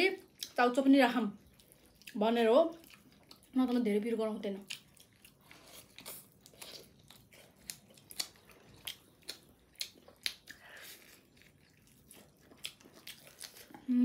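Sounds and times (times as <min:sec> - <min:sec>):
chewing and biting: 0:01.4 - 0:03.6, 0:04.5 - 0:13.9
mouth clicks and smacks: 0:07.7 - 0:10.7.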